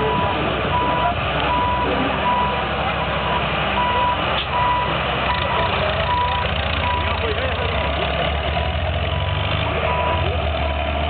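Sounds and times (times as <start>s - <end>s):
engine running: 0.0s - 11.0s
reversing alarm beeping: 0.1s - 3.2s, 3.8s - 7.2s, 9.1s - 10.3s.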